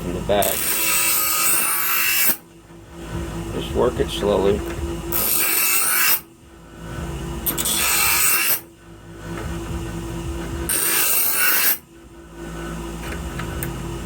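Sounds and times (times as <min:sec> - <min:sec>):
blade scraping: 0:00.0 - 0:14.0
knife blade grinding: 0:00.4 - 0:02.5, 0:04.4 - 0:06.3, 0:07.4 - 0:08.7, 0:10.7 - 0:11.9.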